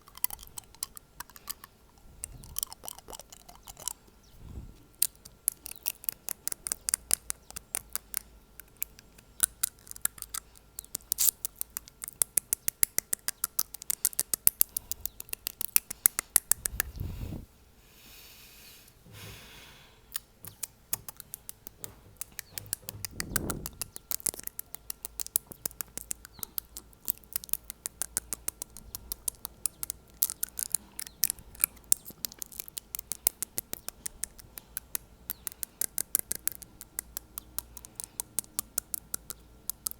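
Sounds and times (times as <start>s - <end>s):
blown air whooshes: 4.4s - 4.8s, 16.5s - 17.6s
fingernail tapping on teeth: 5.0s - 17.0s, 20.1s - 39.9s.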